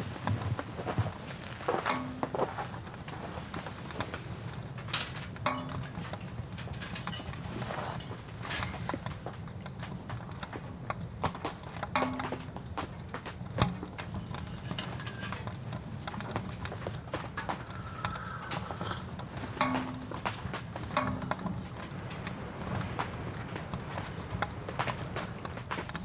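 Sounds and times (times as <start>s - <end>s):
sharp ticks and taps: 19.3s - 26.0s.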